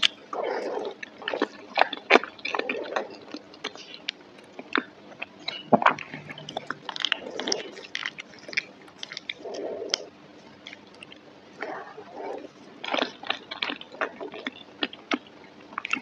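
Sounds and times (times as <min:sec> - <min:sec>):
person chewing wet food: 0:00.0 - 0:16.0.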